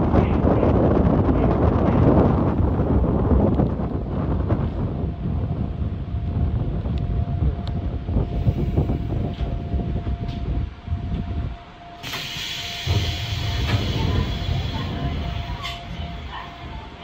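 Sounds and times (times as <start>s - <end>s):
train running gear rumbling: 0.0s - 17.0s
compressed air hissing: 12.0s - 15.6s.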